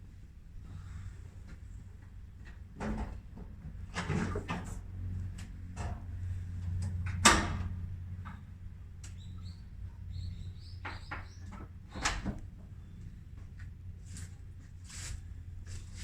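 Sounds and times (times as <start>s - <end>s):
steady low hum: 4.5s - 10.8s
small bird chirping: 9.1s - 11.5s.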